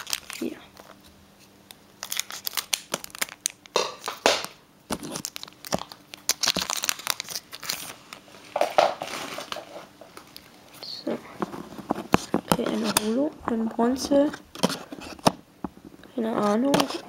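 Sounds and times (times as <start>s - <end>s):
foil wrapper crinkling and tearing: 0.0s - 1.0s, 1.9s - 8.2s.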